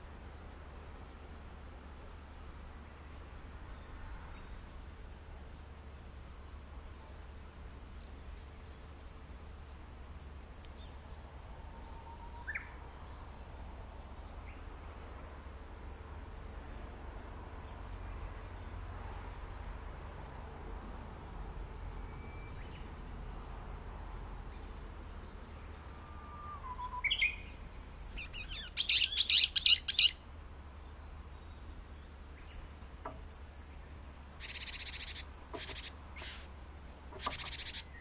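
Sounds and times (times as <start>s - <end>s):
steady outdoor hiss: 0.0s - 38.0s
short bird chirps: 28.2s - 30.2s, 34.4s - 36.5s, 37.2s - 38.0s.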